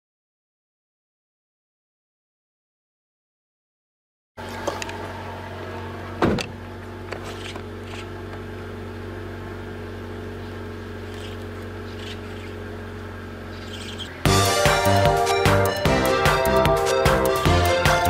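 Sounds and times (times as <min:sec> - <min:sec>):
car engine idling: 0:04.4 - 0:18.0.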